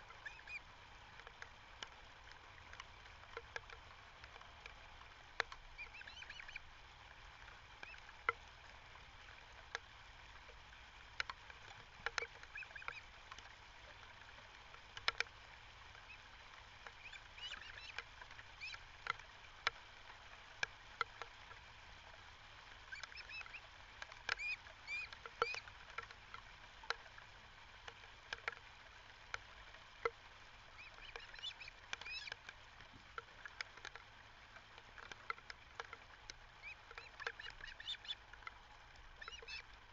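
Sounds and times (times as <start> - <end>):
birds chirping: 5.8 - 6.6, 17.0 - 18.0, 18.6 - 18.8, 22.9 - 23.7, 24.3 - 25.6, 30.8 - 32.4, 36.6 - 38.2, 39.2 - 39.6.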